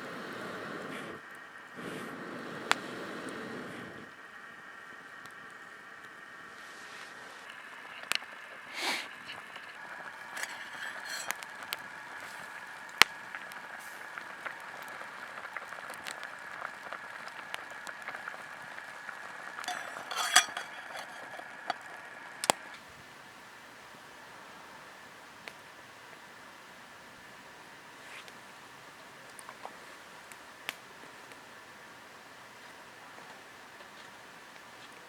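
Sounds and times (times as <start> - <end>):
rustling: 19.7 - 22.8.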